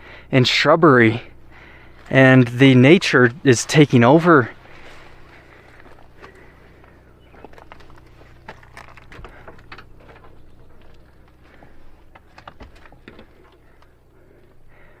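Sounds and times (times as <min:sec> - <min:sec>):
brush rustling: 0:01.3 - 0:13.9
footsteps on dry leaves: 0:03.6 - 0:10.0.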